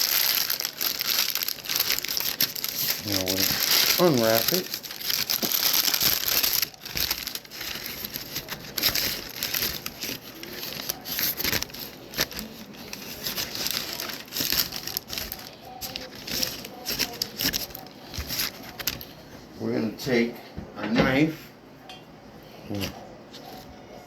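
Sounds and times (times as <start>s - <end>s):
cling film crinkling: 0.0s - 19.2s.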